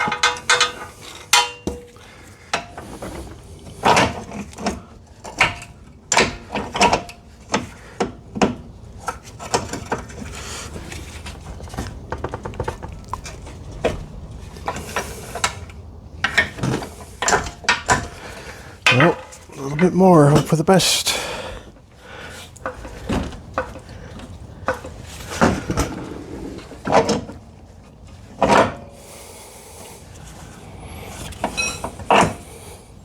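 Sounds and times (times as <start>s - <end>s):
hand tools clinking on metal: 0.0s - 2.0s, 18.9s - 21.1s.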